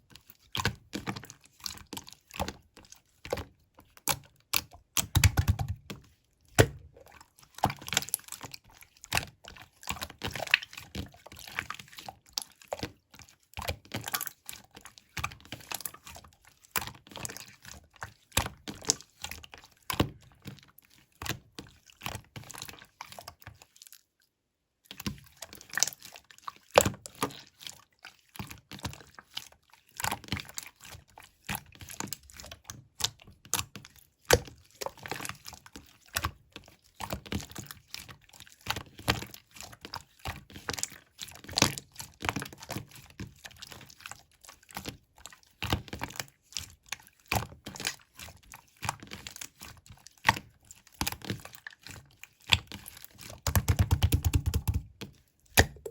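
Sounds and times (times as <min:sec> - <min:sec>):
slime squeezed by hand: 0:55.6 - 0:55.9.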